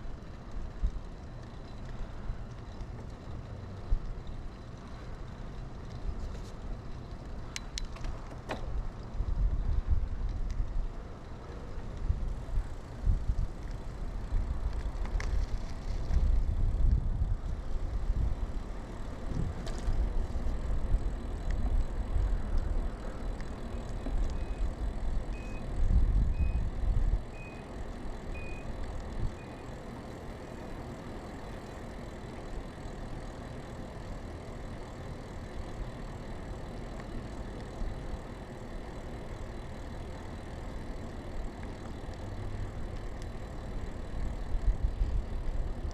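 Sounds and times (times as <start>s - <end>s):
tyre and road noise: 0.0s - 45.9s
wind buffeting microphone: 12.0s - 23.4s, 24.0s - 29.4s
short high beeps: 25.4s - 25.7s, 27.3s - 27.7s, 28.3s - 28.7s.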